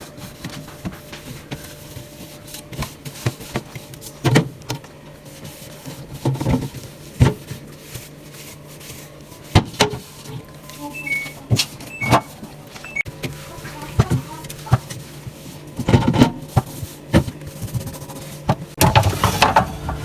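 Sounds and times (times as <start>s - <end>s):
fridge shelves knocking and clunking: 9.5s - 20.0s.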